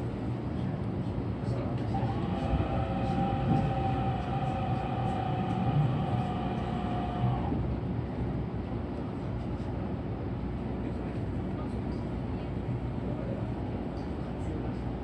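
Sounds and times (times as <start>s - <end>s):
train wheels rumbling on rails: 0.0s - 9.8s
held whine: 1.8s - 7.6s.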